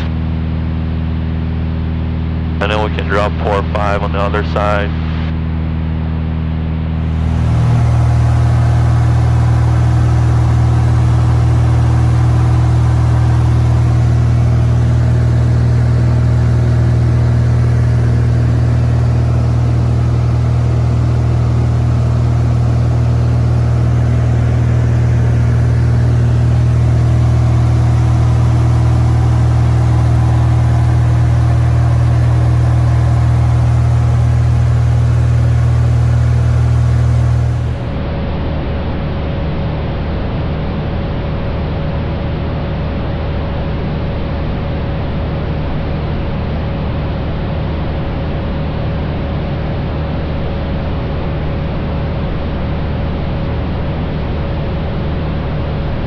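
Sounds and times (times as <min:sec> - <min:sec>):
airplane engine droning in cabin: 0:02.6 - 0:05.3, 0:07.0 - 0:38.0.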